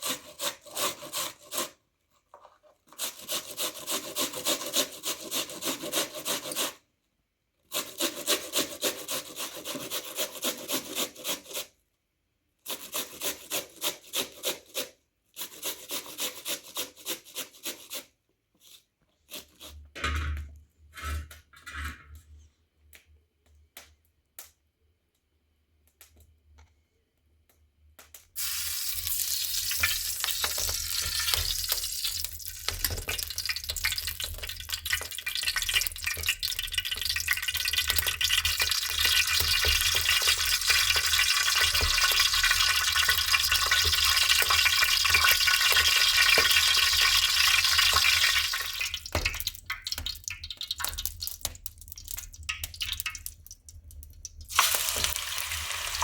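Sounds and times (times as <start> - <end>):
food sizzling in hot oil: 28.4 - 53.4, 54.4 - 56.0.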